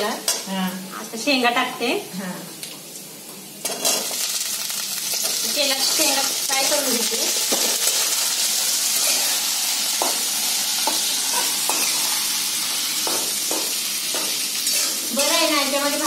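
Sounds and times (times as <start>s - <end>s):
food sizzling in hot oil: 3.4s - 16.0s.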